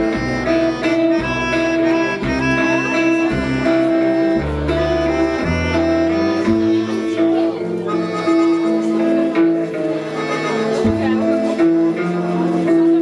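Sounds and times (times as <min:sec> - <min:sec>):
moving bass line: 0:00.0 - 0:09.8
held chords: 0:00.0 - 0:13.0
plucked strings: 0:00.0 - 0:13.0.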